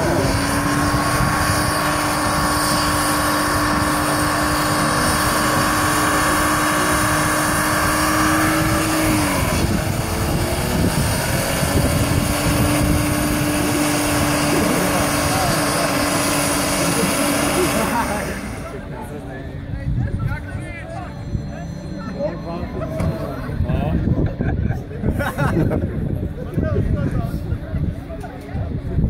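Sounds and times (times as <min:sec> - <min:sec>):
car engine revving high: 0:00.0 - 0:18.9.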